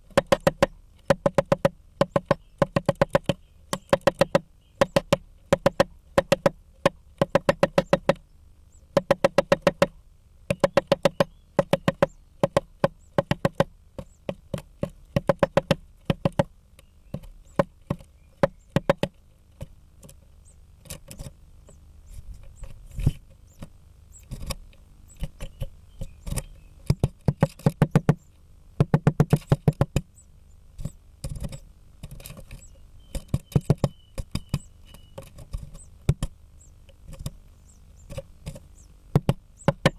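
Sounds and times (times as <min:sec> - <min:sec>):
woodpecker pecking on wood: 0:00.0 - 0:39.9.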